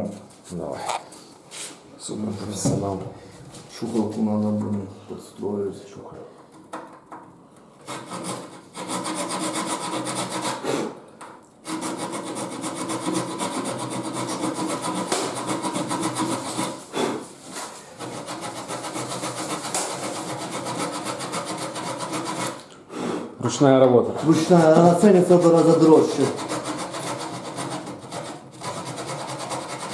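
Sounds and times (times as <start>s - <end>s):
hand saw cutting board: 7.8s - 11.0s, 11.6s - 17.2s, 18.0s - 22.7s, 24.1s - 29.9s.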